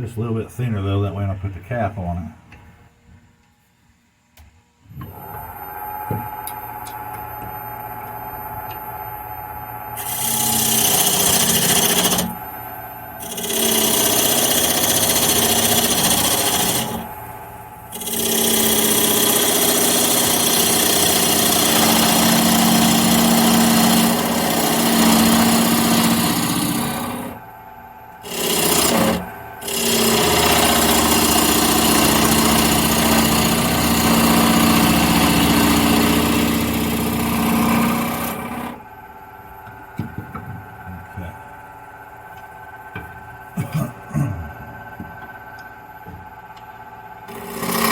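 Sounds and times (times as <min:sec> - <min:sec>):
wood lathe motor hum: 0:04.9 - 0:43.6, 0:44.5 - 0:47.9
turning tool scraping wood: 0:10.0 - 0:12.4, 0:13.2 - 0:17.2, 0:17.9 - 0:27.4, 0:28.2 - 0:38.8, 0:46.2 - 0:47.9.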